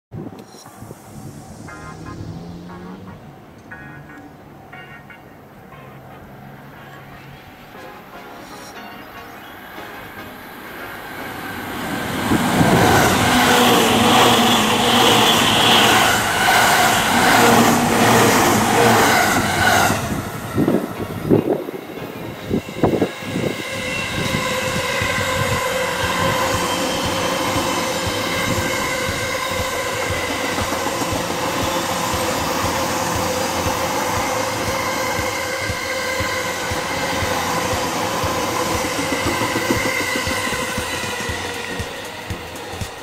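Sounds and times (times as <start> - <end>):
train whine: 0.1 - 43.0
train wheels rumbling on rail: 10.6 - 43.0.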